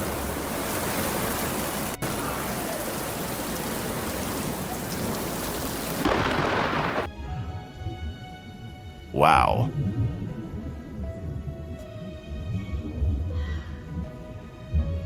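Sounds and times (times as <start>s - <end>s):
heavy rain pouring: 0.0s - 7.1s
low rumble of thunder: 0.0s - 7.1s.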